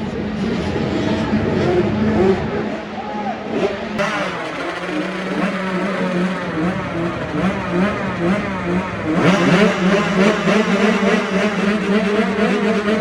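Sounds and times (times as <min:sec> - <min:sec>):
motocross engines revving: 0:00.0 - 0:13.0
loud engine rising pitch: 0:04.0 - 0:13.0.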